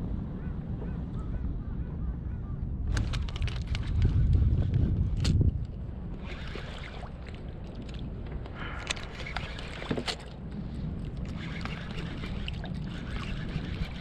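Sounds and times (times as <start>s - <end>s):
wind on microphone: 0.0s - 14.0s
water sloshing around kayak: 3.1s - 14.0s.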